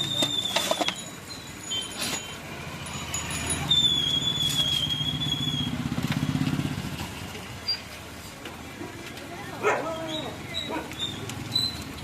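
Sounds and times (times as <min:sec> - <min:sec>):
high whistling tone: 0:00.0 - 0:02.4, 0:03.5 - 0:06.4.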